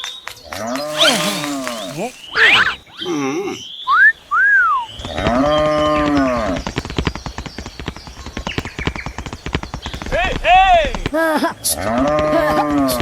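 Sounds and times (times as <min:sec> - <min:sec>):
rising and falling whistles: 0:00.9 - 0:02.3
fast clicks: 0:00.9 - 0:02.4.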